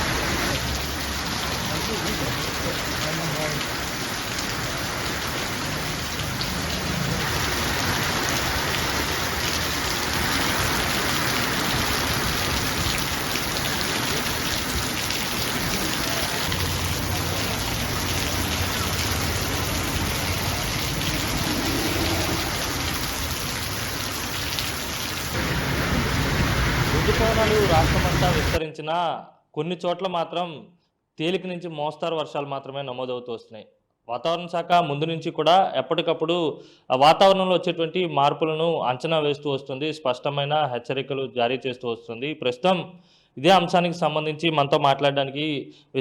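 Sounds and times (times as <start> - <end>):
heavy rain falling: 0.0 - 28.6.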